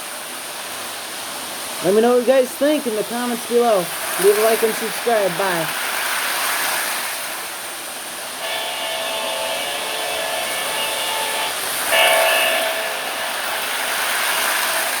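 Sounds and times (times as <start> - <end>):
steady hiss: 0.0 - 15.0
model train horn: 8.4 - 15.0.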